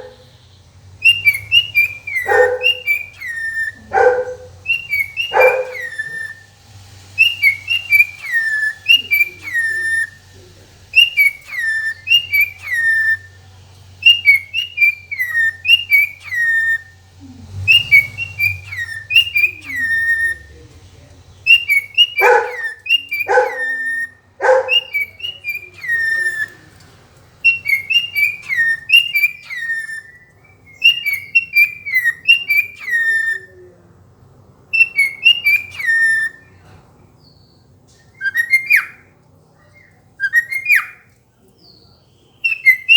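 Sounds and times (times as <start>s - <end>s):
short loud bird calls: 0.0s - 6.6s, 21.4s - 26.7s
cockatiel whistling: 1.0s - 6.6s, 7.2s - 10.2s, 10.9s - 13.4s, 14.0s - 17.0s, 17.6s - 20.6s, 21.4s - 26.6s, 27.4s - 33.6s, 34.7s - 36.6s, 38.0s - 39.1s, 39.7s - 41.1s, 42.2s - 42.9s.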